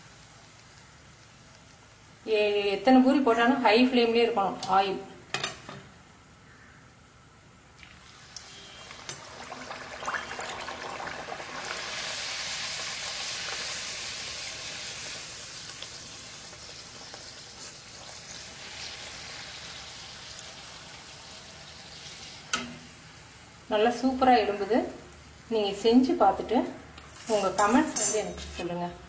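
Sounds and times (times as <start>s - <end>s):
food sizzling in hot oil: 8.0s - 24.6s.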